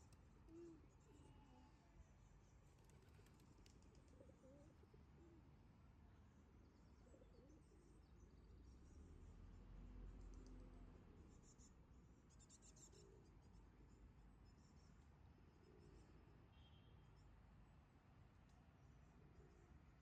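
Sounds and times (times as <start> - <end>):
faint high clicks and chirps: 0.0 - 1.2, 2.1 - 4.3, 10.2 - 10.7, 18.4 - 18.8.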